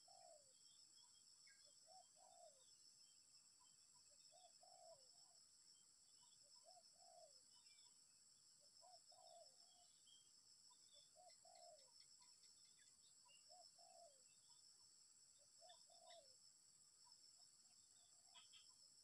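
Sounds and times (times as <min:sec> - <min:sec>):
dove cooing: 0:00.0 - 0:00.4.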